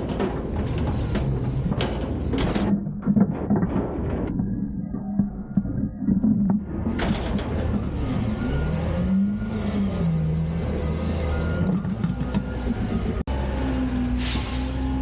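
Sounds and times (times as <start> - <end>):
garbage truck diesel engine revving: 6.6 - 15.0.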